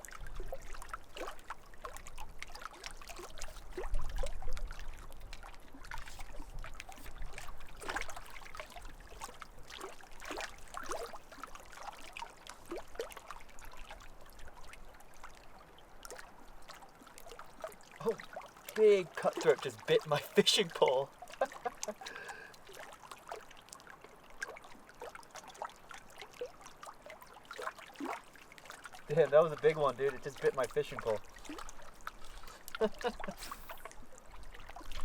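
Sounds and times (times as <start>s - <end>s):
water lapping at shoreline: 0.0s - 35.0s.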